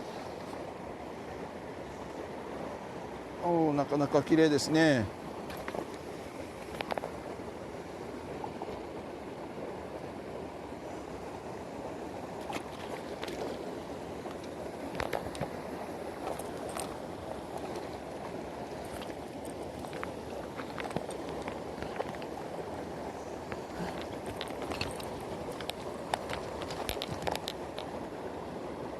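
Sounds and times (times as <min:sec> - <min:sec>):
stream flowing: 0:00.0 - 0:28.9.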